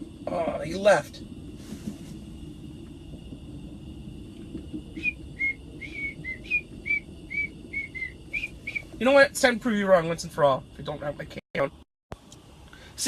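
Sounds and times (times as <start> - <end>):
steady low rumble: 0.0 - 13.0
person whistling a tune: 5.0 - 8.9.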